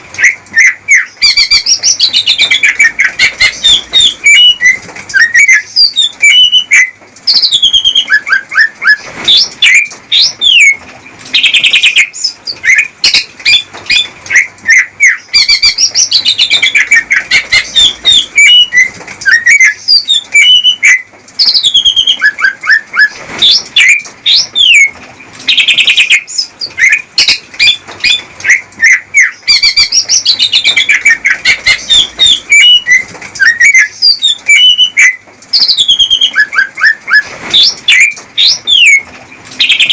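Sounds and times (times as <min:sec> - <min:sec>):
bird singing chirps and trills: 0:00.2 - 0:39.9.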